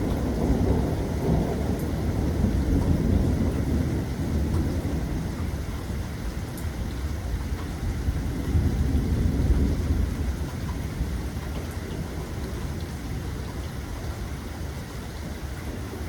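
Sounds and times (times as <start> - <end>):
raindrop ticks: 0.0 - 2.0, 2.7 - 3.7, 4.4 - 7.8, 9.6 - 14.3
thunder rumble: 0.0 - 5.6, 8.1 - 13.6
steady rain: 0.0 - 16.0.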